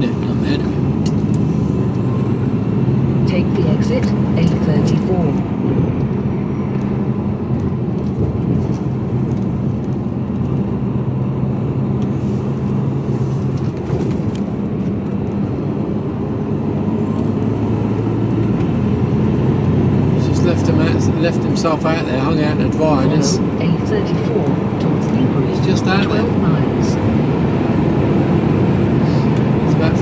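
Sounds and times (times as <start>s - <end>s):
lorry diesel engine running: 0.0s - 30.0s
road noise: 0.0s - 30.0s.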